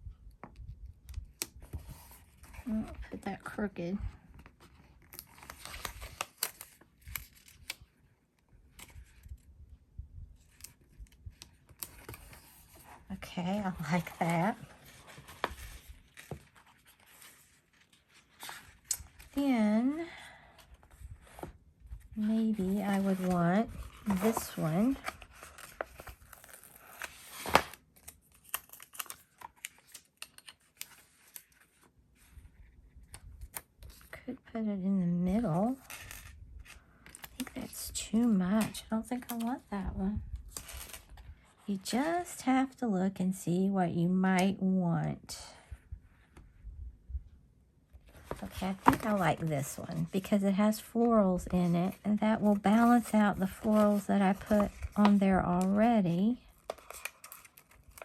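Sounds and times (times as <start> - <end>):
paper rustling: 11.6 - 19.4, 20.6 - 32.5, 48.1 - 58.0.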